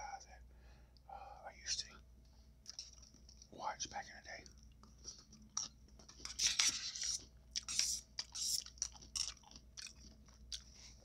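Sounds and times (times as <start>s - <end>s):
chewing food: 2.6s - 3.5s, 4.4s - 11.0s.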